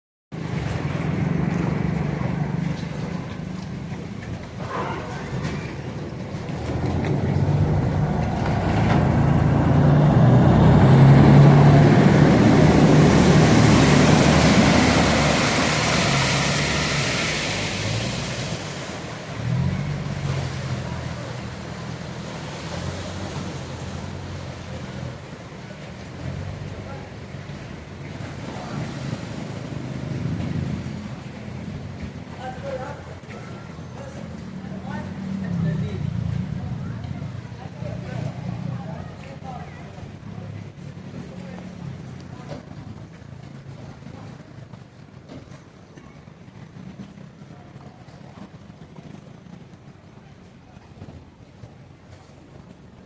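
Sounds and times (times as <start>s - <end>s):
vehicle engines running: 0.4s - 53.0s
vehicle passing close: 6.4s - 31.8s.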